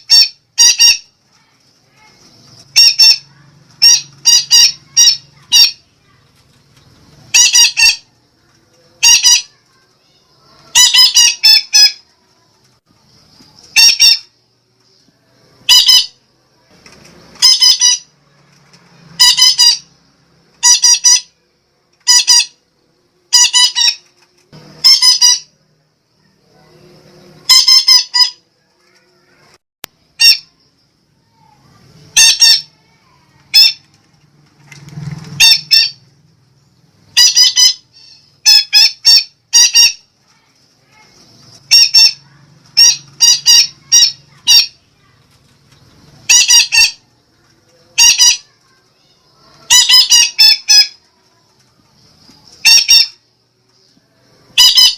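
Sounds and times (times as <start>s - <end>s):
parakeet squawking: 0.0s - 1.1s, 2.6s - 5.8s, 7.3s - 8.1s, 9.0s - 9.6s, 10.6s - 12.0s, 13.7s - 14.3s, 15.6s - 16.2s, 17.4s - 18.1s, 19.2s - 19.9s, 20.6s - 21.4s, 22.0s - 22.6s, 23.3s - 24.0s, 24.8s - 25.5s, 27.4s - 29.0s, 30.2s - 30.6s, 32.1s - 32.8s, 33.4s - 33.9s, 35.4s - 36.0s, 37.1s - 40.1s, 41.0s - 44.8s, 46.2s - 47.1s, 47.9s - 48.6s, 49.6s - 51.0s, 52.6s - 53.2s, 54.5s - 54.9s.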